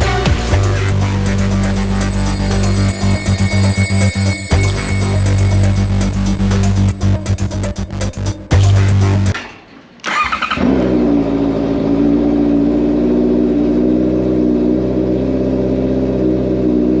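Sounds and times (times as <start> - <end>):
music: 0.0 - 9.4.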